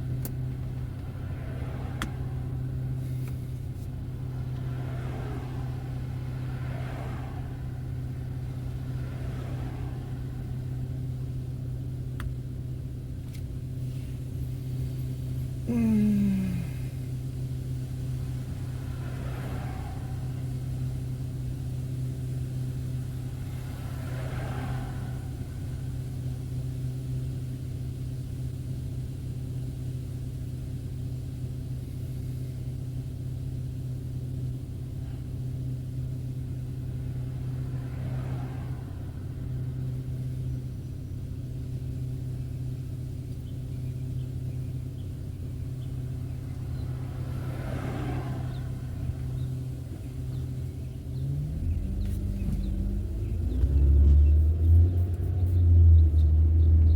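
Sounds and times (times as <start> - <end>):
car engine and tyres droning: 0.0 - 56.9
vehicle passing swish: 0.8 - 11.3, 18.1 - 21.6, 22.5 - 26.5, 36.8 - 40.6, 45.9 - 56.9.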